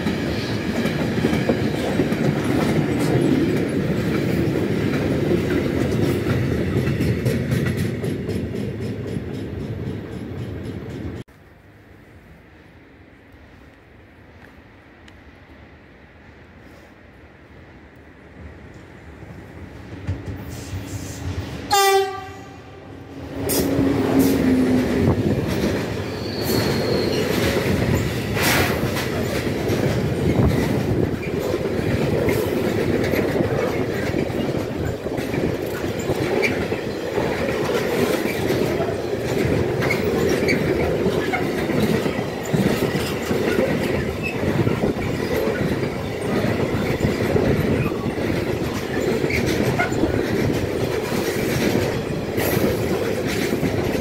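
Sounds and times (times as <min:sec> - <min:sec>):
train wheels rumbling on rails: 0:00.0 - 0:54.0
train horn blast: 0:21.7 - 0:24.6.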